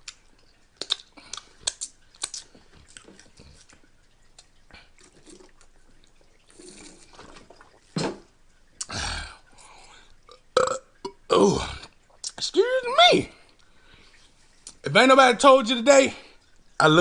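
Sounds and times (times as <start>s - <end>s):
crunchy chewing: 0.0s - 5.8s.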